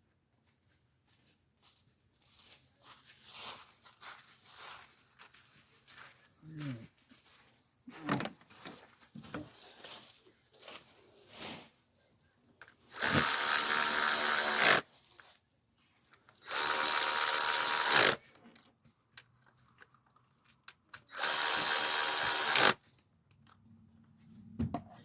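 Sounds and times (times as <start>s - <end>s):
cordless power driver running: 12.9s - 14.9s, 16.4s - 18.3s, 21.1s - 22.8s.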